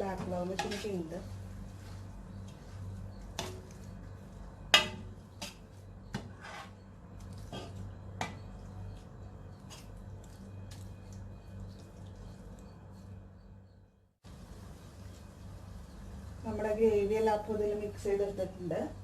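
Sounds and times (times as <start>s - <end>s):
low steady hum: 0.0s - 19.0s
metal spatula scraping steel pan: 0.5s - 1.1s, 4.8s - 6.9s.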